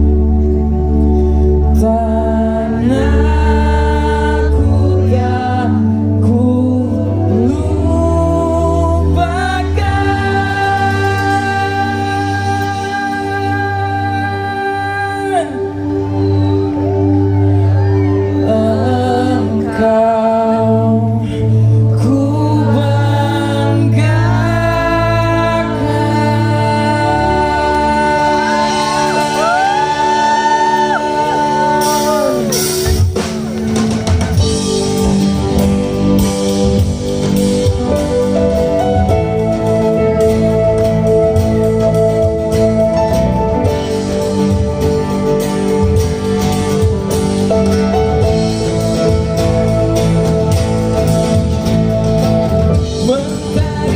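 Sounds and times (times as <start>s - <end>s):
group singing slow melody: 0.0s - 33.0s
steady bass: 0.0s - 53.9s
sustained keyboard chords: 0.0s - 53.9s.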